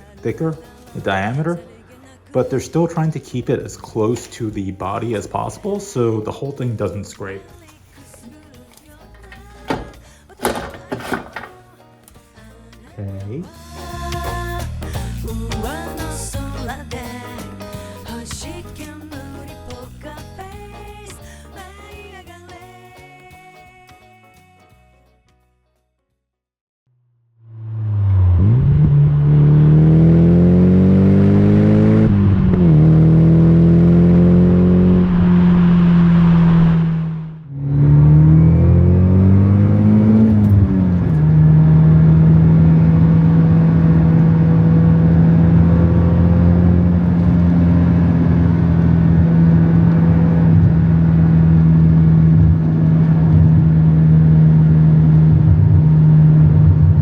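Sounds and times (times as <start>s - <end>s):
car engine revving and idling: 27.4s - 57.0s.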